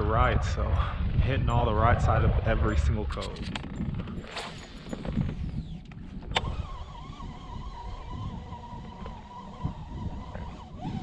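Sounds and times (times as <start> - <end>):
fishing line whizzing out: 4.2 - 5.7
fishing reel whining: 4.2 - 11.0.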